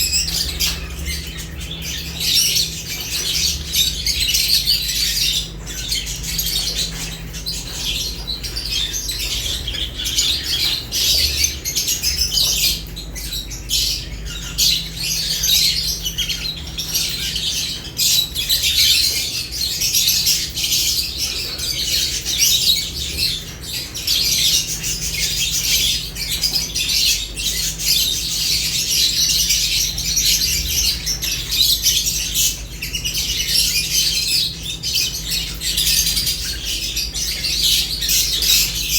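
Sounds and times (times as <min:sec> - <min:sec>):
lovebirds chirping: 0:00.0 - 0:38.9.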